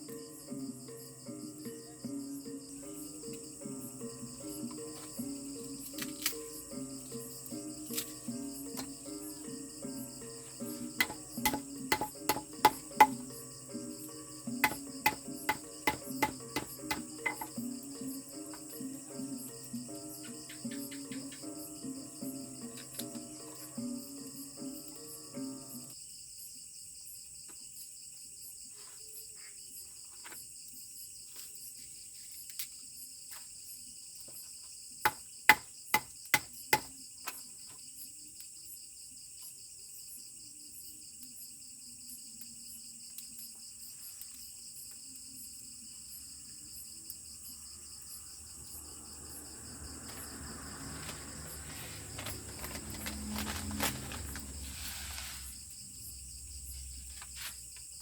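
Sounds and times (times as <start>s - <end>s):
insects chirring: 0.0s - 58.0s
sharp knocks: 11.0s - 13.2s, 14.6s - 17.6s
rustling and scraping: 50.0s - 58.0s.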